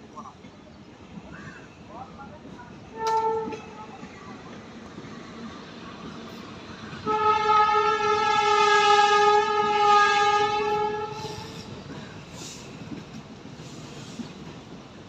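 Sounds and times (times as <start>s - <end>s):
train rumble: 0.0s - 15.0s
train horn blast: 2.9s - 3.8s, 7.0s - 11.6s.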